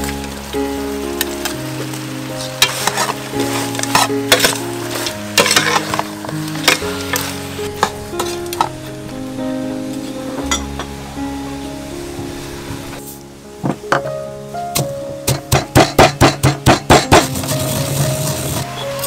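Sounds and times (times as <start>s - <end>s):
chicken sizzling in a pot: 0.0s - 8.7s, 16.6s - 19.0s
soft background music: 0.0s - 19.0s
metal ladle scraping pot: 2.6s - 8.8s.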